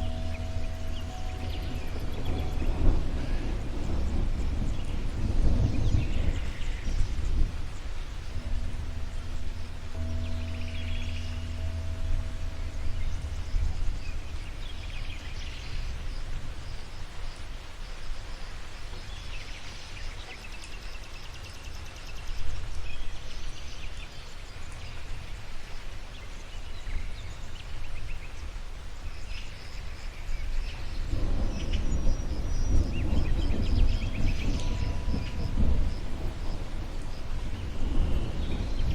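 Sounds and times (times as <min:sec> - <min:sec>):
thunder rolling: 0:00.0 - 0:17.7, 0:31.0 - 0:38.9
birds chirping: 0:00.0 - 0:38.9
rain: 0:00.0 - 0:38.9.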